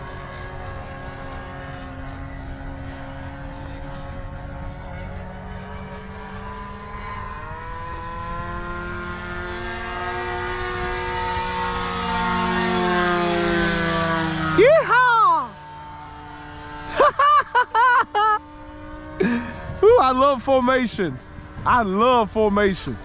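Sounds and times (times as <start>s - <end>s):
model airplane engine: 0.0s - 23.0s
second model airplane engine: 0.0s - 23.0s.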